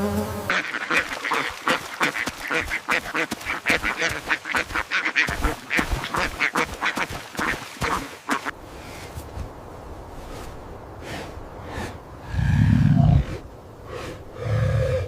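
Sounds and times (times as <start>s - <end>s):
ducks quacking: 0.5s - 8.6s.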